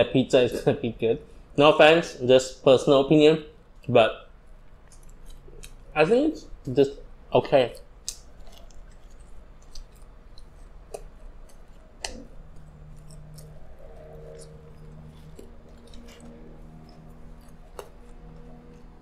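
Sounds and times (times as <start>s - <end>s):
chewing with mouth smacks: 4.6s - 19.0s.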